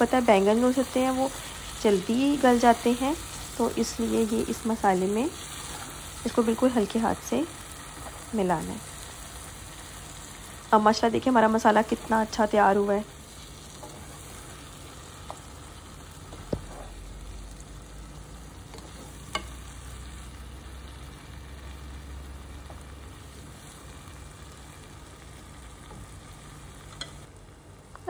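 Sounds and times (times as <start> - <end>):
vegetables sizzling in oil: 0.0 - 28.0
spatula stirring: 5.3 - 6.3, 13.2 - 17.0.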